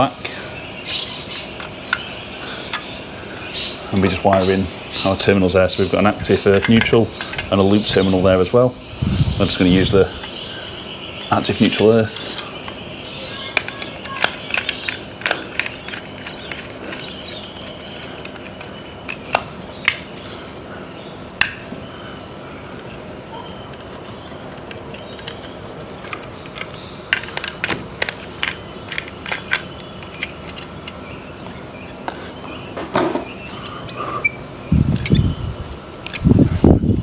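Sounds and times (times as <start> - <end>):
wires clicking into terminals: 11.1 - 20.4, 23.6 - 36.4.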